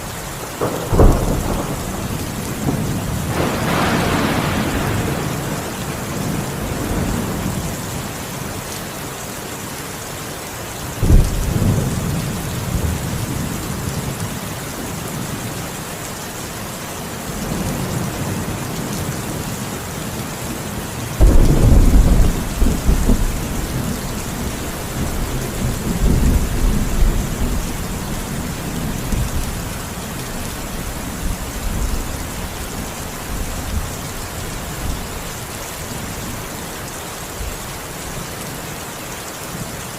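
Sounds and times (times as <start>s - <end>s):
heavy rain: 0.0s - 39.9s
thunder cracks and rumble: 0.6s - 7.8s, 11.0s - 14.1s, 21.2s - 29.8s.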